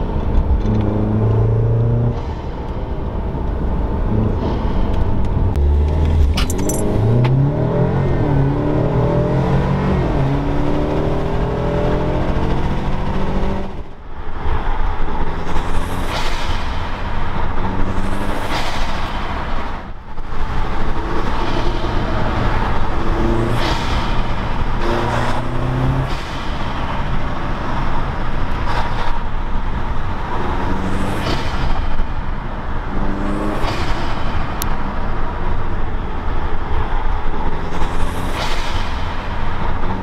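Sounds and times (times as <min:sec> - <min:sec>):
car engine accelerating: 0:00.0 - 0:13.9.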